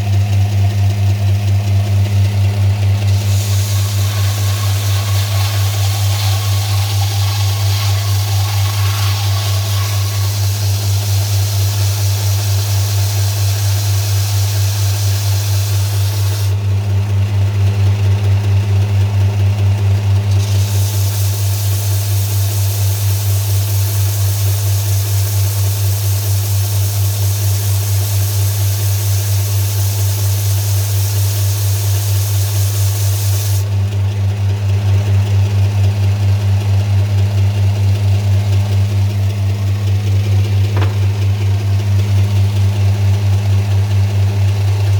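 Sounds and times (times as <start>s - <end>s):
electric grinder humming: 1.9s - 17.2s, 20.3s - 33.6s, 39.3s - 44.4s
hiss: 3.0s - 16.6s, 20.3s - 33.8s.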